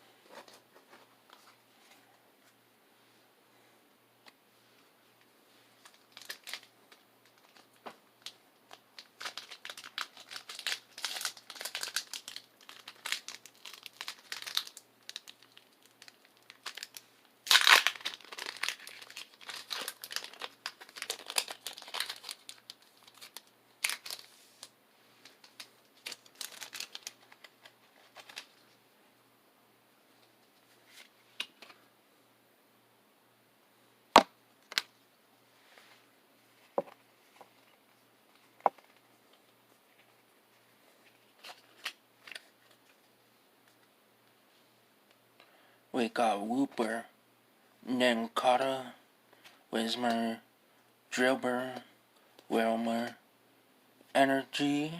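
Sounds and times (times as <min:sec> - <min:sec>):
foil wrapper crinkling and tearing: 0:05.8 - 0:06.7, 0:09.0 - 0:24.7, 0:25.3 - 0:28.6.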